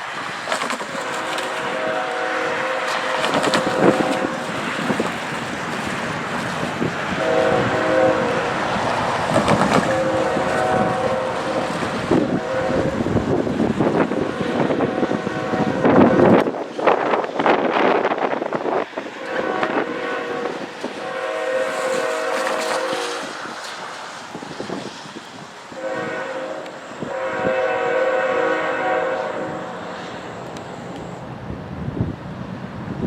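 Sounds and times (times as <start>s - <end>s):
moving train rumble and rattle: 0.0s - 33.0s
locomotive air horn blasts: 0.7s - 16.5s, 19.1s - 23.7s, 25.6s - 31.2s.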